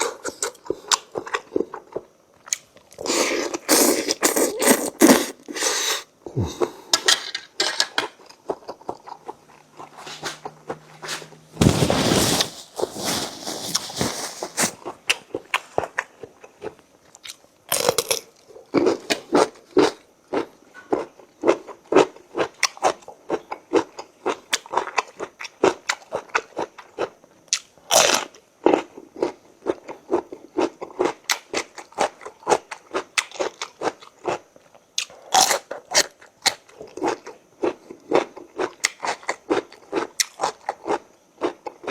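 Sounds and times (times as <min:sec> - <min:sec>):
chewing and crunching: 0:00.0 - 0:05.2, 0:08.0 - 0:11.3, 0:13.4 - 0:41.9.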